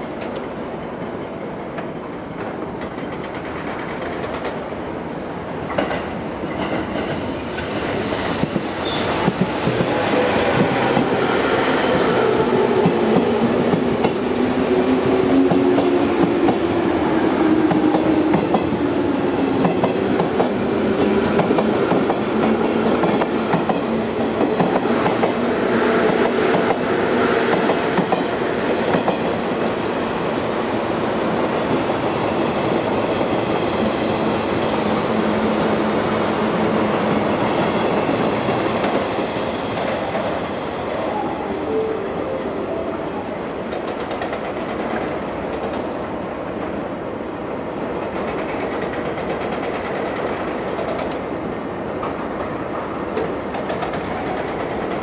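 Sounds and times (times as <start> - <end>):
train wheels clattering on rails: 0.1 - 4.8, 5.6 - 34.3, 35.6 - 41.2, 43.6 - 46.8, 47.8 - 55.0
high wheel squeal: 8.1 - 9.1, 26.7 - 33.0.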